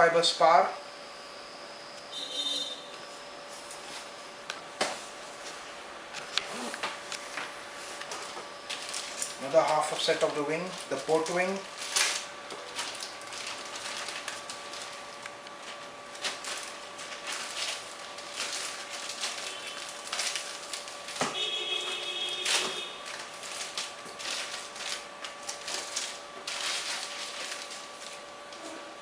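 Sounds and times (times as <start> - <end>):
packaging crinkling and rustling: 6.2 - 28.8.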